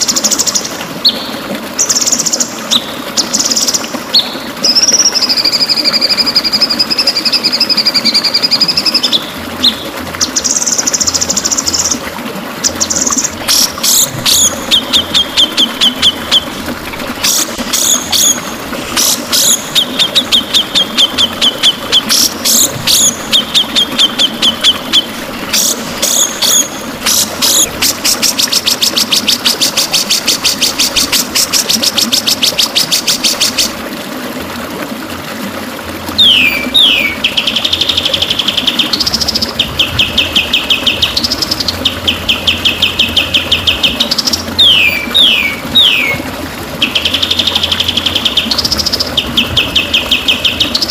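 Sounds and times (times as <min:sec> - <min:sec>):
bird singing whistles and trills: 0:36.2 - 0:37.8, 0:39.8 - 0:46.2.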